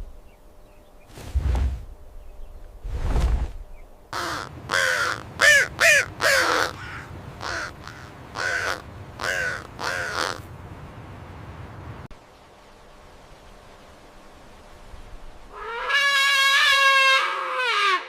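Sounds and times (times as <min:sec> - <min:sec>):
bird cawing: 0:04.1 - 0:10.4, 0:15.5 - 0:18.0.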